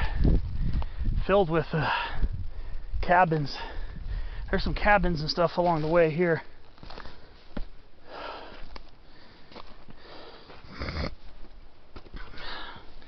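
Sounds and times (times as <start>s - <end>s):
person breathing heavily: 0.0s - 4.5s, 6.9s - 11.2s, 12.2s - 13.0s.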